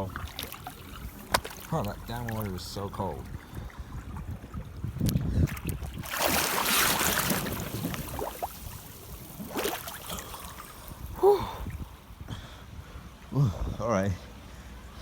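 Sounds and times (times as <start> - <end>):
water splashing in a pool: 0.0 - 11.9.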